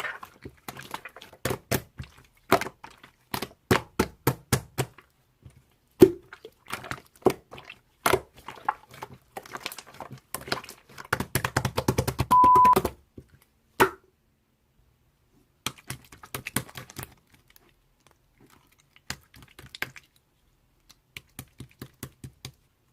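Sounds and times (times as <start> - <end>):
short steady beep: 12.3 - 12.8.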